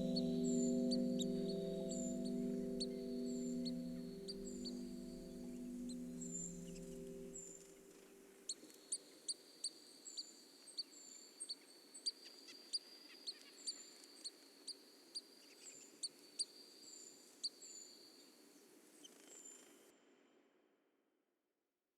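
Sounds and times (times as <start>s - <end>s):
nuthatch peeping: 0.0s - 7.3s.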